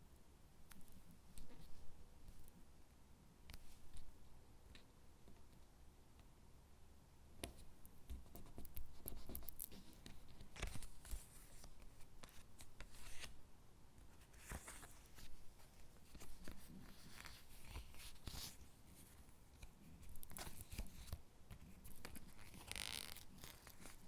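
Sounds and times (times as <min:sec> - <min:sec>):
paper rustling: 0:09.8 - 0:13.4, 0:14.1 - 0:19.2.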